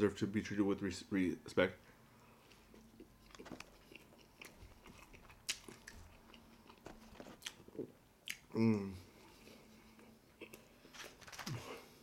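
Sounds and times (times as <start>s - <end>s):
close chewing with mouth smacks: 2.5s - 8.5s.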